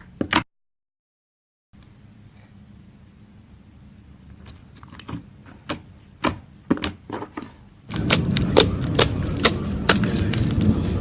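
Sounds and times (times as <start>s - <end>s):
slime clicking and popping: 7.9s - 10.7s.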